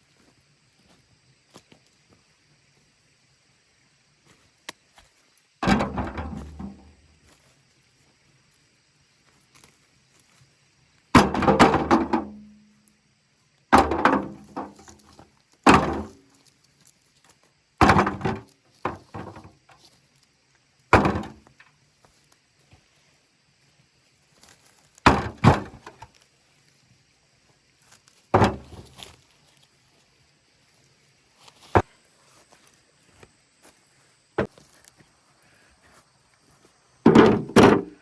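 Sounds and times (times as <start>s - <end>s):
axe chopping into wood: 11.2s - 12.3s, 15.7s - 16.2s, 17.8s - 18.4s, 21.0s - 21.4s, 25.1s - 26.0s, 37.1s - 38.0s.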